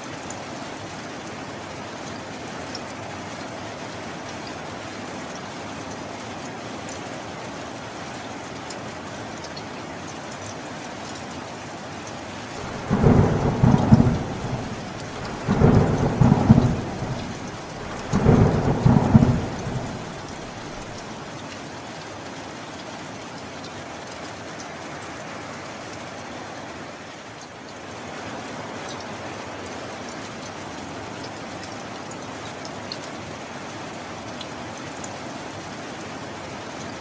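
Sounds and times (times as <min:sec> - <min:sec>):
heavy rain: 0:00.0 - 0:37.0
thunder rumbles: 0:12.6 - 0:21.2.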